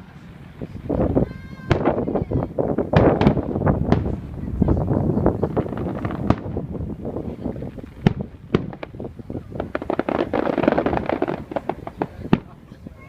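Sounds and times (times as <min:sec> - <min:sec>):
fireworks exploding: 0:00.0 - 0:13.0.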